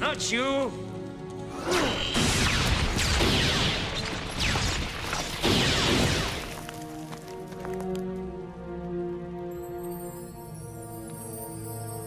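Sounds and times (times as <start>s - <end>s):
dramatic music: 0.0s - 12.0s
crashing blasts with falling zap: 1.9s - 6.6s.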